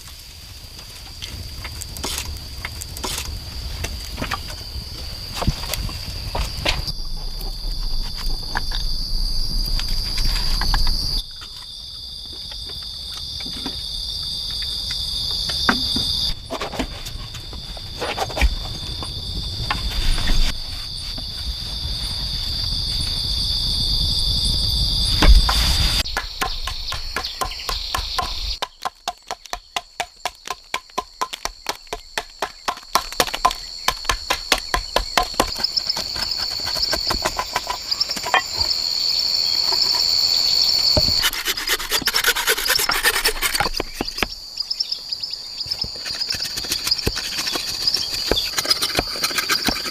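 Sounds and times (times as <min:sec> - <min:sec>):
insects chirring: 0:00.0 - 0:49.9
loud thump: 0:25.2 - 0:25.7.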